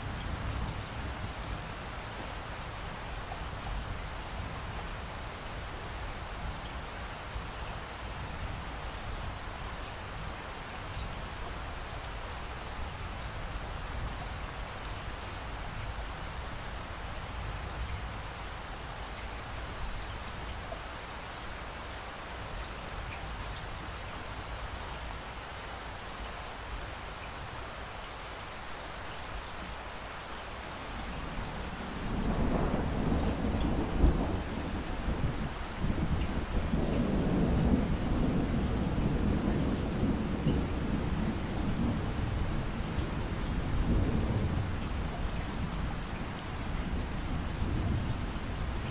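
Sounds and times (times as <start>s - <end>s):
steady rain falling: 0.0s - 48.9s
rolling thunder rumble: 31.7s - 48.9s.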